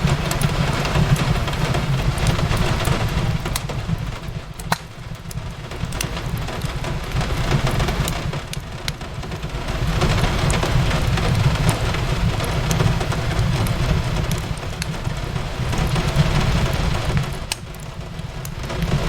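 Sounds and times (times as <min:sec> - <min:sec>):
fireplace crackling and popping: 0:00.0 - 0:19.0
rain on a window: 0:00.0 - 0:19.0.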